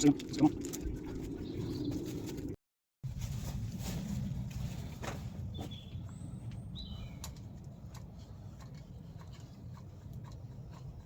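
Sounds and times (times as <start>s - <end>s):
steady low rumble: 0.0s - 11.0s
bird chirping: 1.1s - 2.3s, 5.4s - 7.6s.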